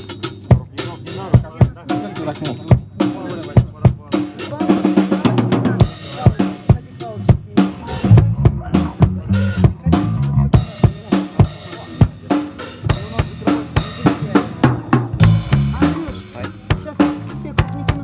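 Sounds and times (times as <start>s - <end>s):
drum kit rock beat: 0.0s - 18.0s
low bass line: 8.0s - 10.8s, 12.8s - 18.0s.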